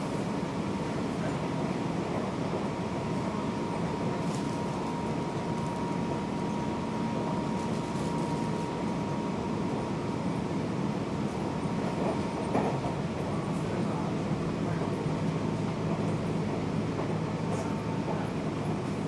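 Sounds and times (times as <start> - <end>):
train wheels rumbling: 11.2 - 19.0.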